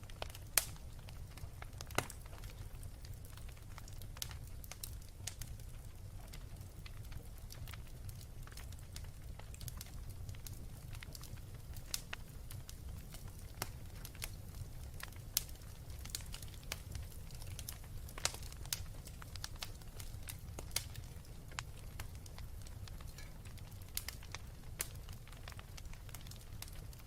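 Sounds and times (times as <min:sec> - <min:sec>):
low rumble of flame: 0:00.0 - 0:27.0
wood fire crackling: 0:00.0 - 0:27.0.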